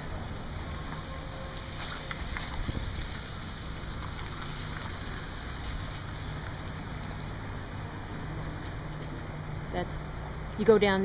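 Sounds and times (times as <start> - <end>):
street traffic noise: 0.0 - 11.0
truck engines humming: 0.0 - 11.0.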